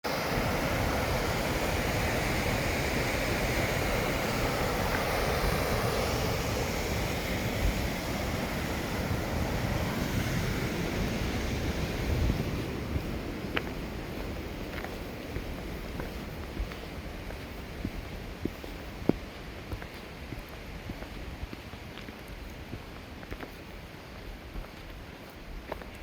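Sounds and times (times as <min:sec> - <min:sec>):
waterfall rushing: 0:00.1 - 0:17.0.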